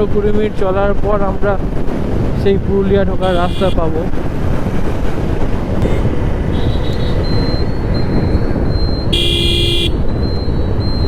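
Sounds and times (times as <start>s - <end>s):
wind noise: 0.0s - 11.0s
motorcycle engine riding: 1.1s - 11.0s
vehicle horn: 3.2s - 3.9s, 5.8s - 7.3s, 9.1s - 10.0s.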